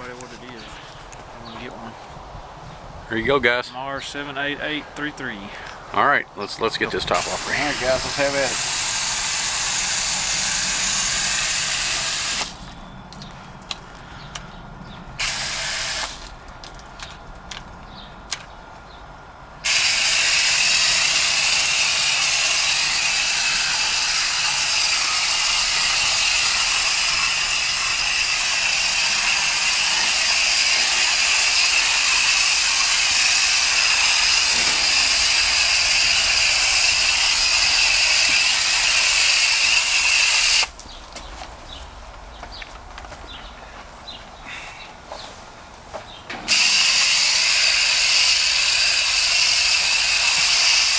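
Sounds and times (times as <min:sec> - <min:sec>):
power tool motor whining: 0:07.1 - 0:12.8, 0:15.2 - 0:16.4, 0:19.6 - 0:40.8, 0:46.4 - 0:50.9.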